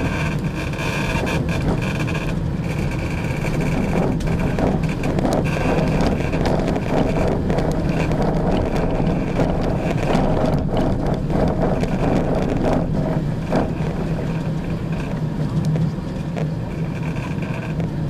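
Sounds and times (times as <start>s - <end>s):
train running drone: 0.0s - 18.0s
wheels clicking and rattling: 0.0s - 18.0s.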